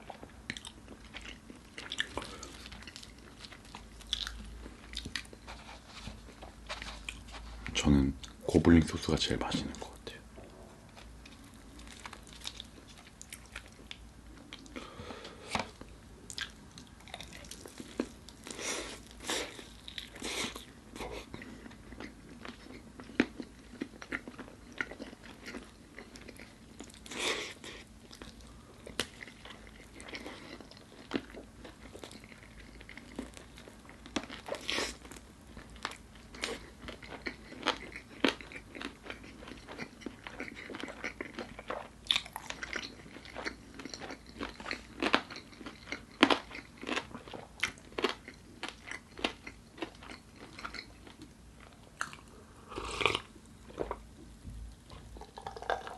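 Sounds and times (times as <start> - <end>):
fried chicken crunching while eating: 11.3 - 14.9, 16.3 - 54.0, 54.9 - 55.9.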